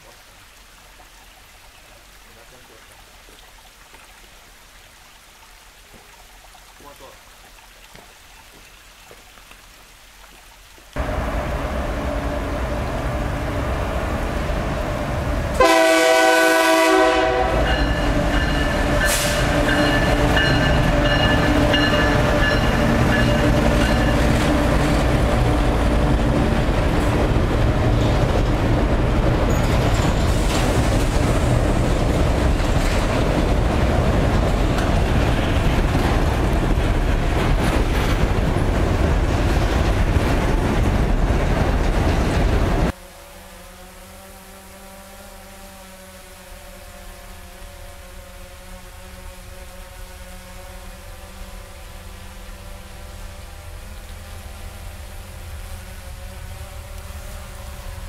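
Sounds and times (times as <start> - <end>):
diesel train engine and wheels: 11.0 - 43.0, 47.2 - 58.0
train air horn blast: 15.5 - 24.6
train wagons rumbling and clattering: 17.4 - 42.9.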